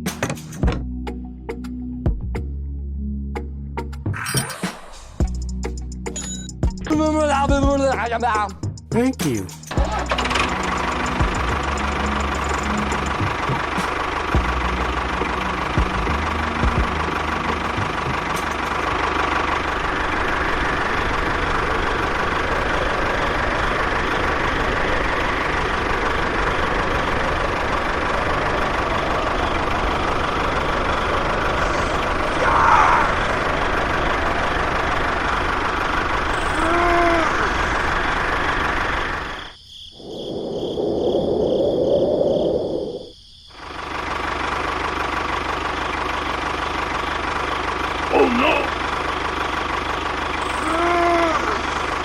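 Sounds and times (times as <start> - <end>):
small model tractor engine: 9.8 - 13.4, 17.4 - 32.4, 33.0 - 39.4, 43.6 - 52.0.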